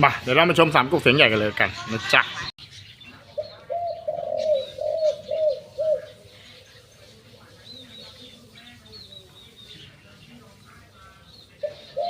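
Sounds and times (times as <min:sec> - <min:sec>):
small birds chirping: 0:01.9 - 0:12.0
dove cooing: 0:03.4 - 0:08.2, 0:11.6 - 0:12.0.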